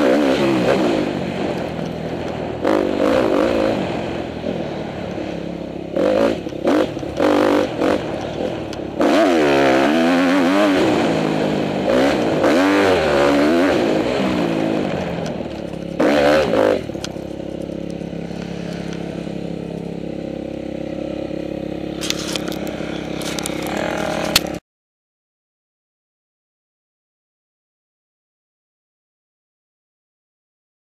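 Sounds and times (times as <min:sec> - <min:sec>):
dirt bike engine revving: 0:00.0 - 0:24.6.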